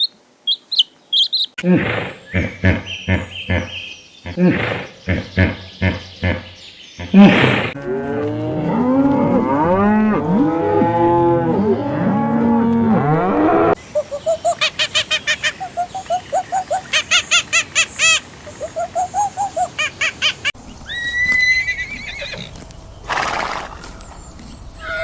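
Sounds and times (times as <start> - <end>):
cows mooing: 7.2 - 13.8.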